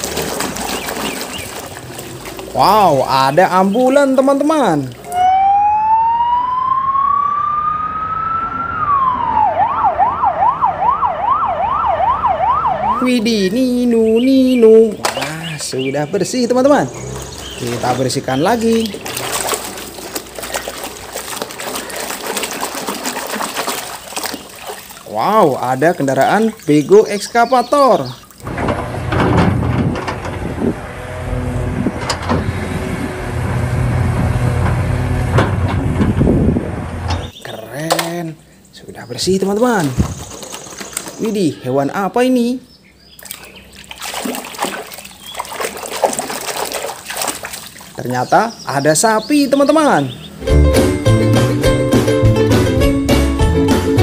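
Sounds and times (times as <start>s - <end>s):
bucket digging into earth: 0.0s - 3.1s, 16.8s - 25.2s, 43.3s - 48.0s
ambulance siren wailing and yelping: 5.1s - 13.2s.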